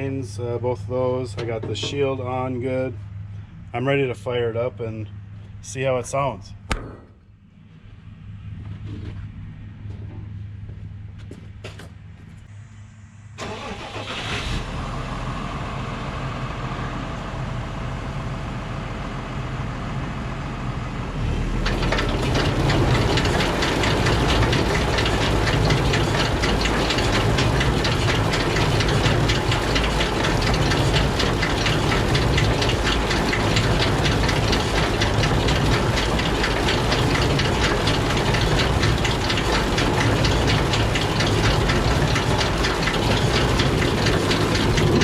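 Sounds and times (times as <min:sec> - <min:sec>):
low machinery hum: 0:00.0 - 0:13.4, 0:14.6 - 0:45.0
baler machinery clattering: 0:01.0 - 0:02.9, 0:21.5 - 0:45.0.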